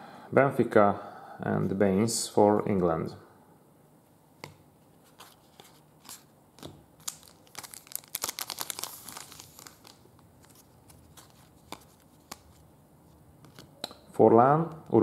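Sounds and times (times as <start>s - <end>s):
plastic wrapper crinkling: 5.2s - 12.7s.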